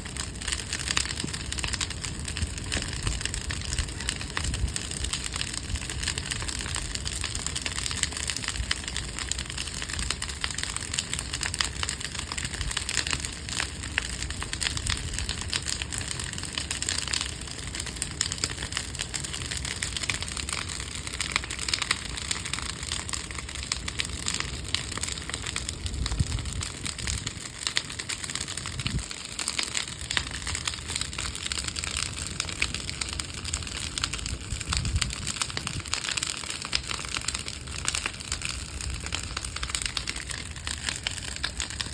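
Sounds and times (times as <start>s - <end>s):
fire rushing noise: 0.0s - 13.8s, 18.4s - 41.9s
bonfire crackling and popping: 0.0s - 41.9s.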